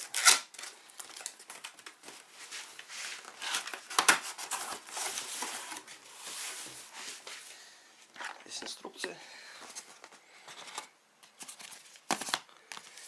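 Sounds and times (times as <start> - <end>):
packaging rustling and crackling: 0.0 - 7.4.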